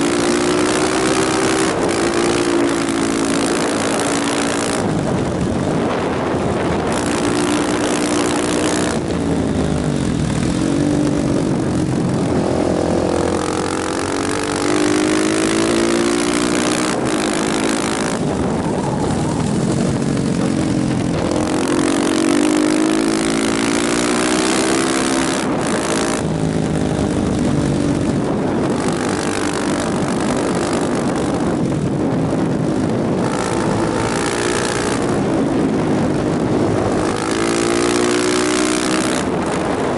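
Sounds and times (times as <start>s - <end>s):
motorcycle engine accelerating: 0.0s - 39.9s
wind rushing over microphone: 0.0s - 39.9s.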